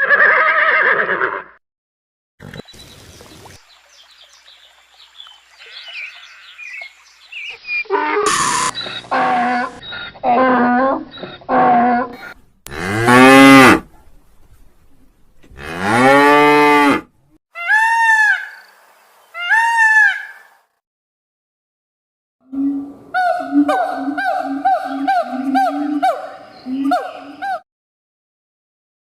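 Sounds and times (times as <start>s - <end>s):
short high-pitched calls: 7.9s - 9.4s
cow mooing: 11.5s - 13.8s, 15.6s - 17.1s.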